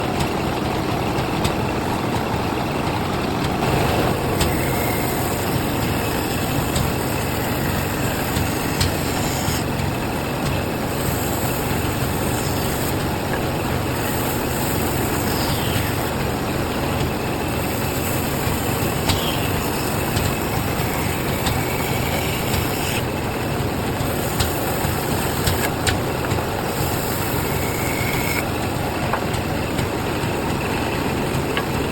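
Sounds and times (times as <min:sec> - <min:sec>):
bandsaw cutting wood: 0:03.6 - 0:16.2, 0:17.2 - 0:28.5.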